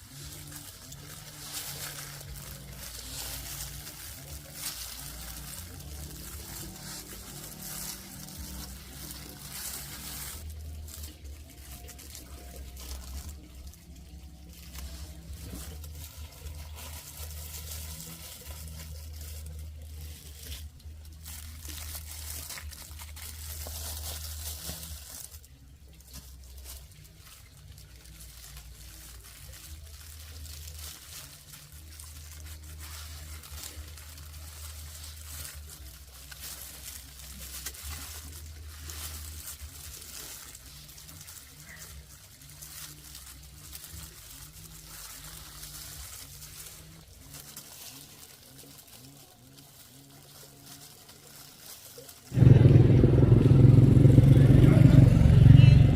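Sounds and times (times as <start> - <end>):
steady low rumble: 52.4 - 55.9.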